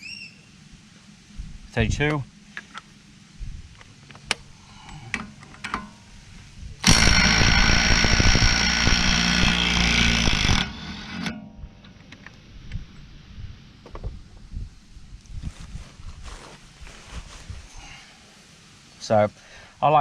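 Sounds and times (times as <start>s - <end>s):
impact wrench hammering: 6.8s - 11.9s.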